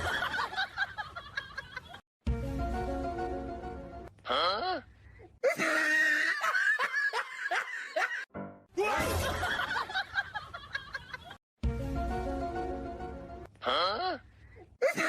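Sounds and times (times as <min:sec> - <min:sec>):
people laughing: 0:00.0 - 0:02.0, 0:05.5 - 0:08.3, 0:08.9 - 0:11.4.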